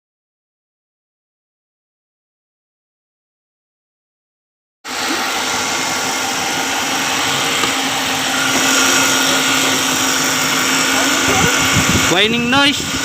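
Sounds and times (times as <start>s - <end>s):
steady belt drive whine: 4.9s - 13.0s
car engine idling: 5.0s - 13.0s.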